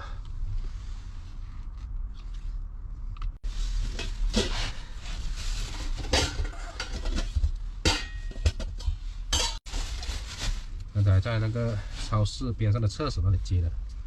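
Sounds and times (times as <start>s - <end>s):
pots and utensils clattering: 5.6s - 9.7s.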